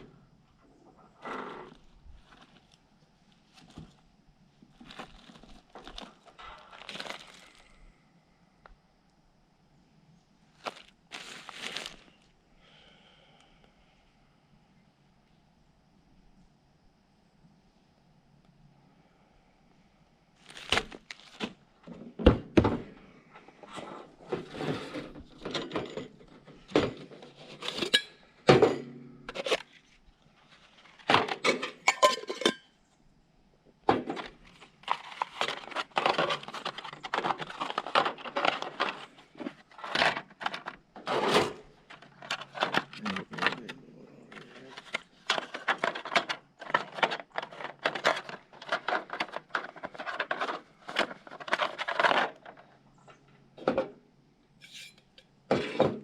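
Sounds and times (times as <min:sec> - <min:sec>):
metal cookware clinking and scraping: 0:27.6 - 0:28.9, 0:31.5 - 0:32.7.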